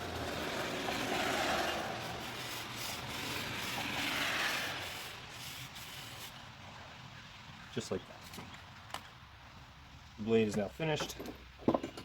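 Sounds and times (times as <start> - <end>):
sandpaper scraping axe blade: 0.5 - 6.4.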